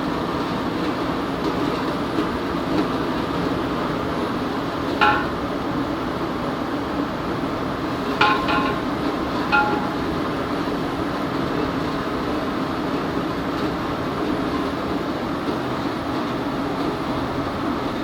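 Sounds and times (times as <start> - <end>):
pot cooking over gas flame: 0.0 - 18.0
metal utensil striking pot: 5.0 - 5.4, 8.2 - 8.8, 9.4 - 10.1.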